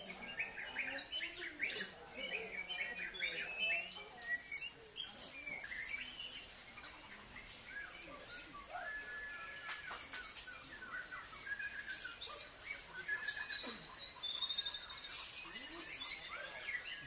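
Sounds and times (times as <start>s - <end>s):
songbirds chirping and whistling: 0.0s - 17.0s
long level bird whistle: 7.6s - 17.0s.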